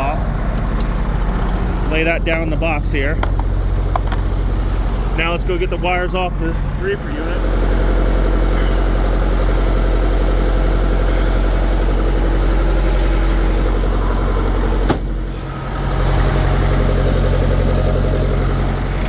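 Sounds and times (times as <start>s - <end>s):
diesel engine running: 0.0s - 19.0s
sharp knock: 14.9s - 15.2s.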